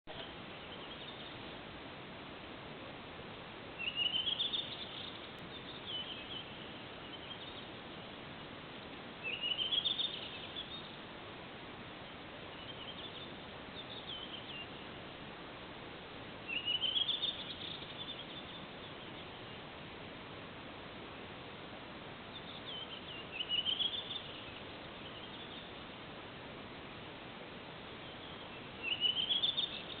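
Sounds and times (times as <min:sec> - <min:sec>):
steady hiss: 0:00.1 - 0:30.0
songbird trilled phrases: 0:28.2 - 0:30.0.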